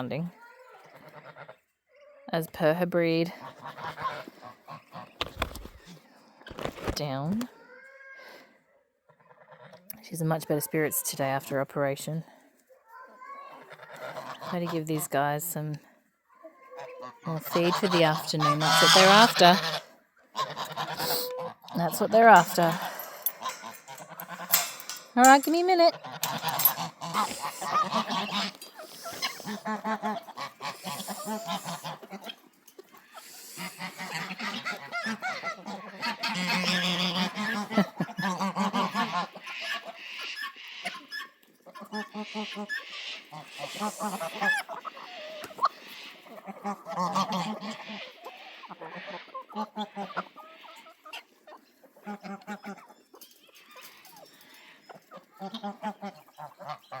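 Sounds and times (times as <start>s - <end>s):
geese honking: 3.2s - 5.4s, 13.8s - 15.4s, 16.8s - 52.9s, 53.7s - 57.0s
waterfowl calling: 16.8s - 53.0s.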